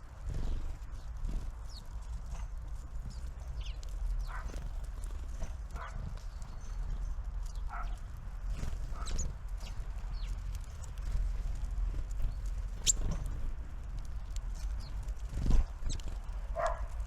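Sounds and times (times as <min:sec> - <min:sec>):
small birds chirping: 0:00.0 - 0:17.0
beaks pecking at seed: 0:03.1 - 0:11.2, 0:12.2 - 0:17.0.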